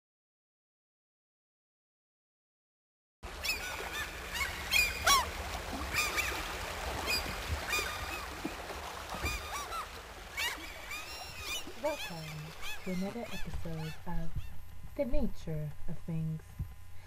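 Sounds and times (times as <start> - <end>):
low steady rumble: 3.2 - 17.0
flock of birds calling: 3.3 - 14.5.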